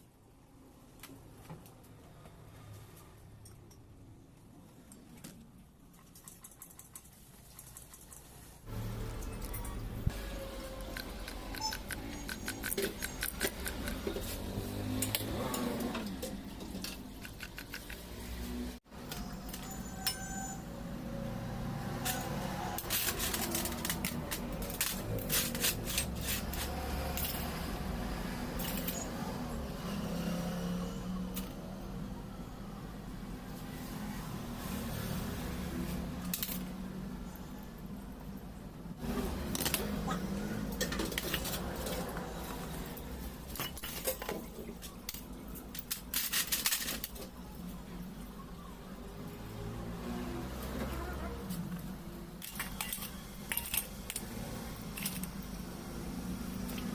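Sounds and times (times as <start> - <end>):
small metal parts clinking: 22.0 - 27.8, 28.6 - 29.1, 43.5 - 47.4, 52.4 - 55.5.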